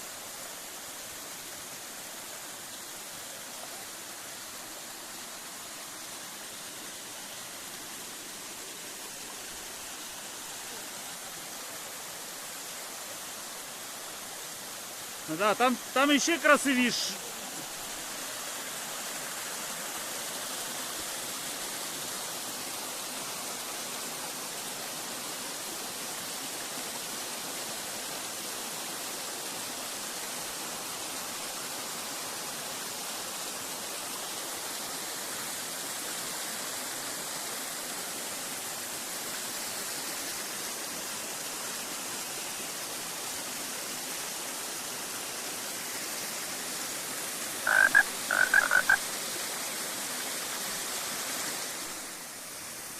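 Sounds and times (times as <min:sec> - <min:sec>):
waterfall rushing: 0:00.0 - 0:35.0, 0:37.6 - 0:52.9
loud frog croaks: 0:47.6 - 0:49.1.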